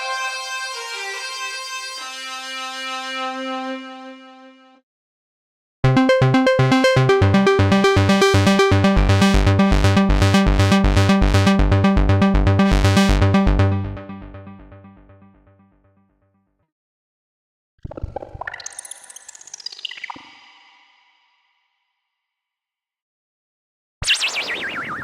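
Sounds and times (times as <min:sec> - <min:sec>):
synthesizer sequenced pattern: 0:05.8 - 0:15.6.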